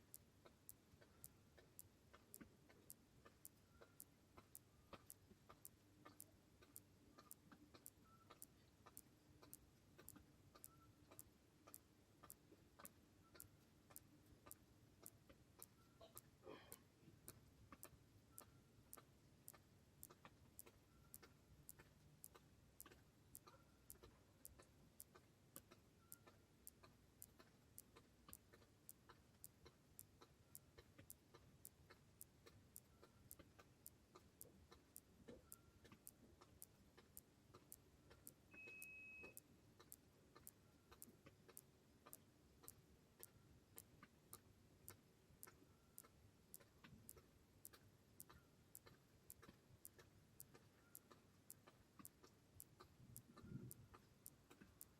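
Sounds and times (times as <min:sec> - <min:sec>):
faint even ticking: 0:00.0 - 0:54.9
short high beep: 0:38.6 - 0:39.4.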